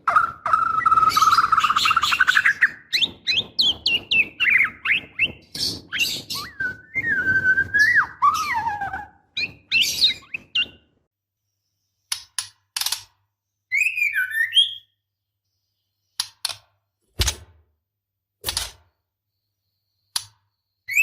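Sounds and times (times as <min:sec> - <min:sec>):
bird chirps and sweeping notes: 0:00.1 - 0:10.9, 0:13.7 - 0:15.0.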